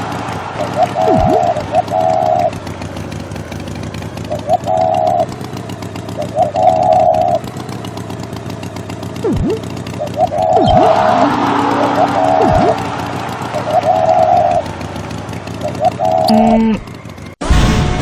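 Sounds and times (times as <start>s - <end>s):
cartoon vehicle motor running: 0.0s - 17.4s
short pitched toots: 10.3s - 16.8s
falling and rising swoop: 10.6s - 14.6s.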